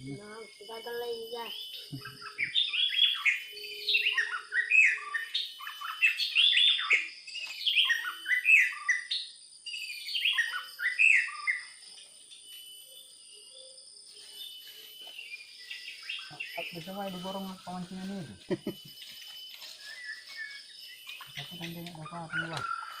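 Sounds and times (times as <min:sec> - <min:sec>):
songbird chirping and trilling: 0:00.0 - 0:23.0.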